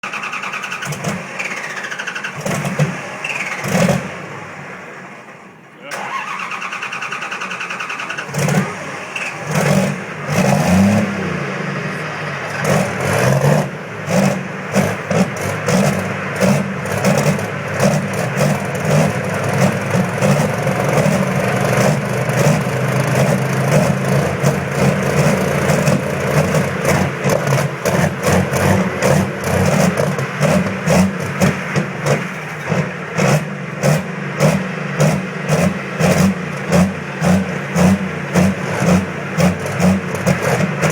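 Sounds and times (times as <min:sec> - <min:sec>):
diesel engine running with clatter: 0:00.0 - 0:40.9
diesel engine starter cranking: 0:00.0 - 0:40.9.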